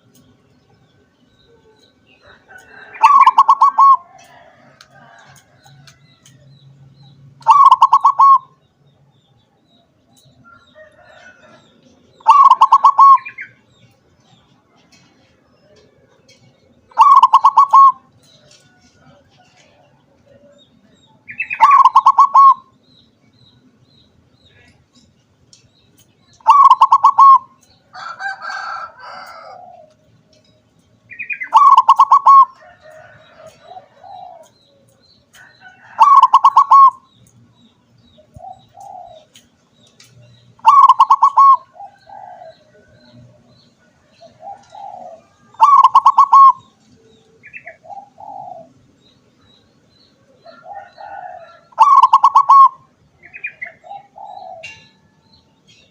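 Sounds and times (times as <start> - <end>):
dove trilled cooing: 1.4 - 5.9, 7.4 - 8.6, 10.9 - 13.6, 14.9 - 20.6, 21.2 - 22.8, 26.4 - 30.4, 31.1 - 37.1, 38.2 - 39.5, 40.6 - 48.8, 50.2 - 55.9
soft dove coos: 1.5 - 6.0, 7.4 - 8.5, 10.9 - 13.4, 14.9 - 20.6, 21.4 - 22.7, 26.4 - 30.5, 31.5 - 37.0, 40.6 - 48.8, 50.4 - 55.2.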